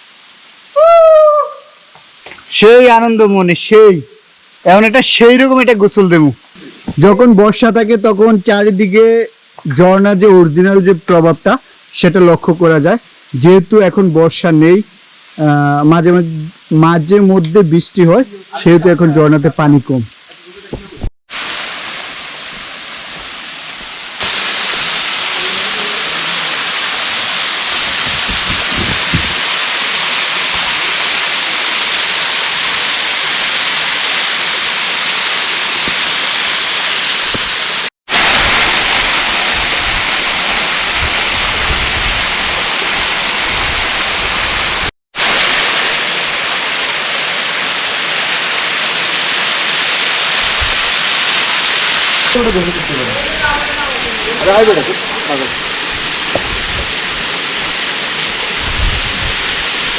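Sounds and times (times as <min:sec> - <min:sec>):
waterfall rushing: 0:04.6 - 0:12.9, 0:15.3 - 0:59.9.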